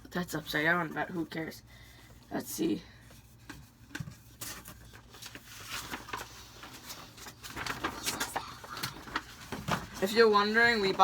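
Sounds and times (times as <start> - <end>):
packaging crackling and tearing: 4.4 - 10.0.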